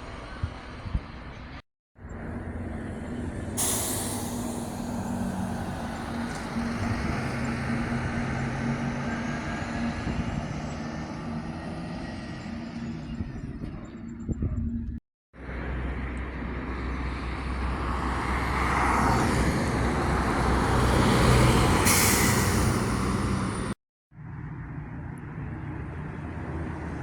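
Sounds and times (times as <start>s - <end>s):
diesel coach engine running: 0.1s - 14.8s, 15.4s - 23.8s
air brake hiss: 3.6s - 7.1s, 21.8s - 23.2s.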